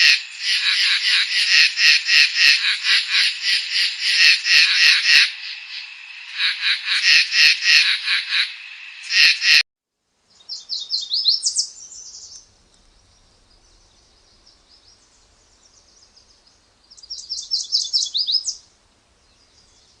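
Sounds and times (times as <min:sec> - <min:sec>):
songbird chirping: 0:00.0 - 0:09.6, 0:10.2 - 0:20.0
faint bird twittering: 0:10.3 - 0:20.0.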